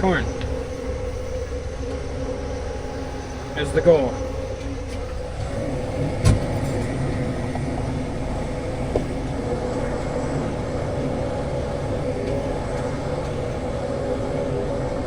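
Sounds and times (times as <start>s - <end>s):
tractor diesel engine running: 4.9s - 15.0s.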